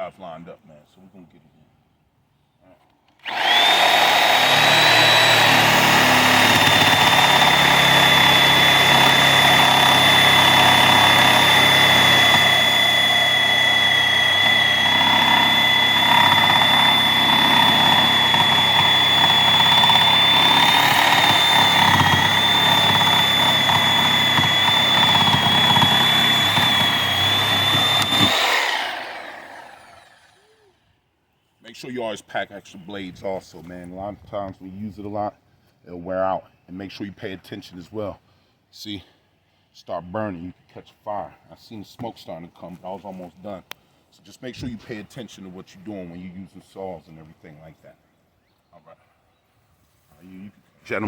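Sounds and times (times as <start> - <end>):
power saw cutting wood: 3.2 - 30.6.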